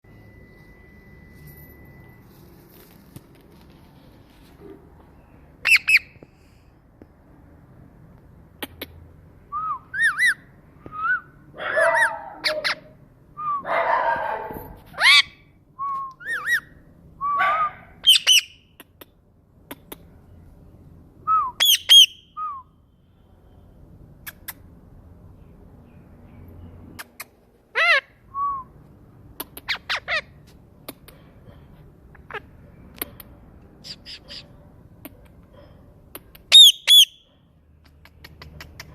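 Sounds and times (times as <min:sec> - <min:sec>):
parrot squawking and whistling: 0:05.6 - 0:06.2, 0:09.5 - 0:11.3, 0:11.9 - 0:13.7, 0:15.0 - 0:15.4, 0:16.2 - 0:18.6, 0:21.3 - 0:22.6, 0:36.5 - 0:37.2.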